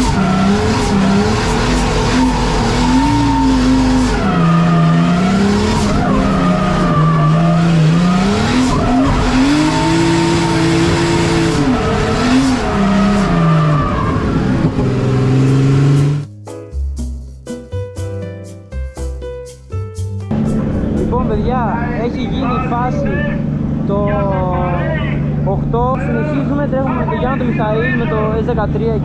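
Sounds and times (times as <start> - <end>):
tyres squealing: 0.0 - 14.6
car engine revving: 0.0 - 16.3, 20.3 - 29.0
music: 15.8 - 22.2.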